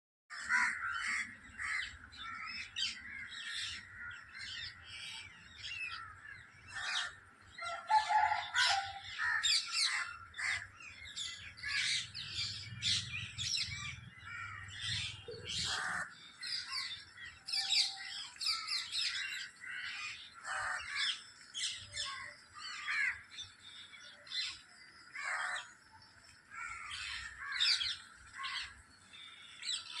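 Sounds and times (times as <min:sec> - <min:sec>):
parrots squawking: 0:14.2 - 0:16.1.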